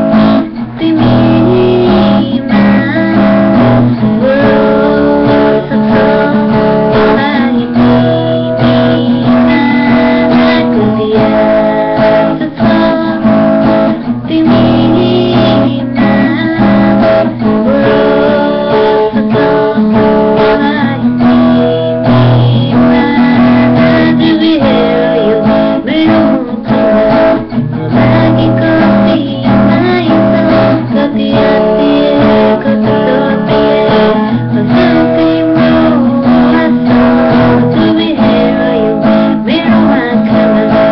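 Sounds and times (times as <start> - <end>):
acoustic guitar strumming: 0.0 - 40.9.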